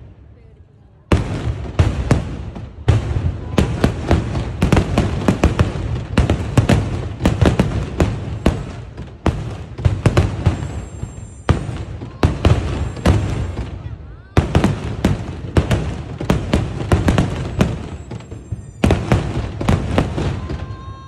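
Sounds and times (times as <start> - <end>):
fireworks bangs: 1.0 - 21.0
high whistle: 10.3 - 13.6, 17.2 - 19.7.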